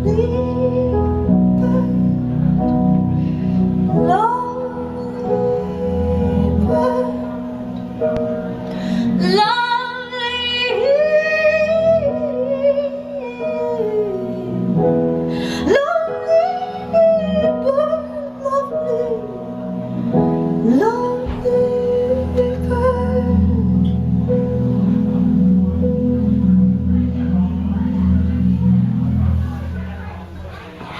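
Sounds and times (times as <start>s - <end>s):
woman singing slow song: 0.0s - 3.1s, 3.9s - 24.1s
sustained keyboard chords: 0.0s - 30.9s.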